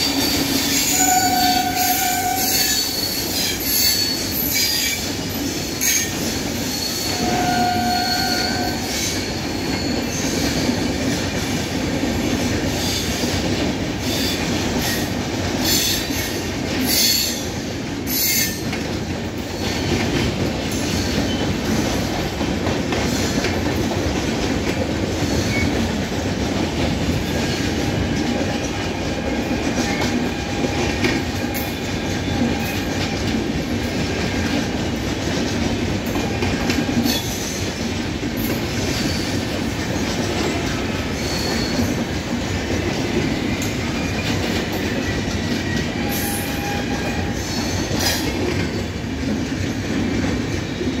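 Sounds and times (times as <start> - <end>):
metallic wheel squeals: 0.0 - 5.1, 5.8 - 11.0, 41.2 - 42.0, 44.8 - 48.2
train wheels rumbling on rail: 0.0 - 51.0.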